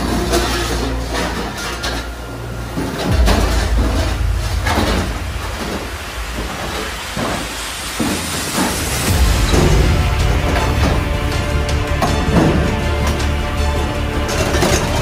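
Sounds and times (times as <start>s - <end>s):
racks and dishes clattering: 0.0s - 3.5s.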